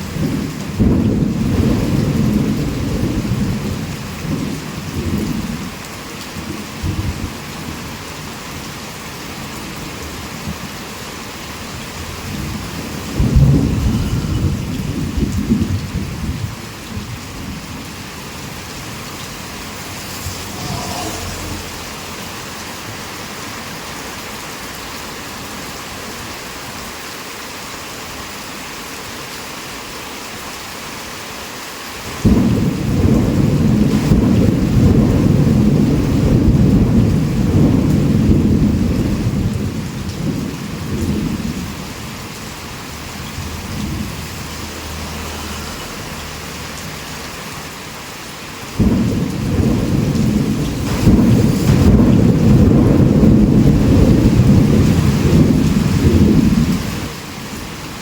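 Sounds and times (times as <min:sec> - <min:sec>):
heavy rain: 0:00.0 - 0:58.0
thunder clap rolling: 0:00.1 - 0:05.7, 0:12.0 - 0:17.6, 0:18.4 - 0:23.8, 0:32.1 - 0:41.8, 0:48.7 - 0:57.7.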